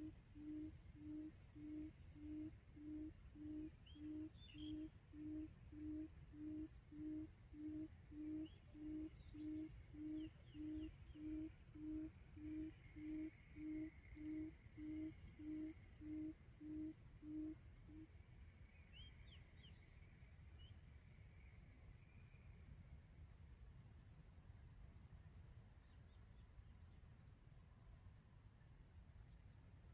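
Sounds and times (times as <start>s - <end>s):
quail call low hoot: 0.0s - 18.1s.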